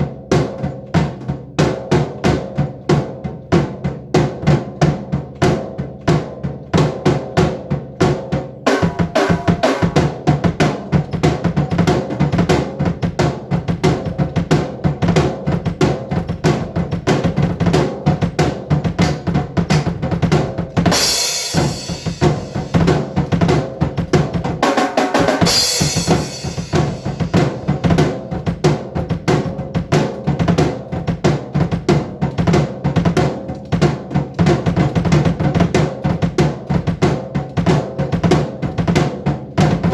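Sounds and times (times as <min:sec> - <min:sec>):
drum kit fast pattern: 0:00.0 - 0:39.9
cymbal crashes: 0:21.1 - 0:22.8, 0:25.4 - 0:27.3.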